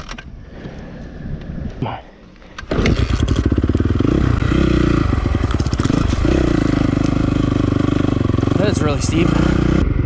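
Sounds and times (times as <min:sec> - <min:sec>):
motorcycle engine revving: 0:02.7 - 0:10.0.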